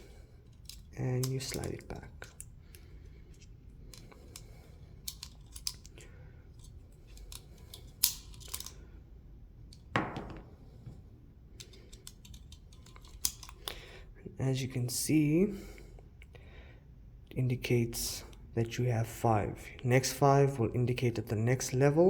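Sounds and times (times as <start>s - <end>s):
cartridges clicking into magazine: 0.5s - 8.8s, 11.6s - 13.8s
heavier knock: 10.0s - 10.6s.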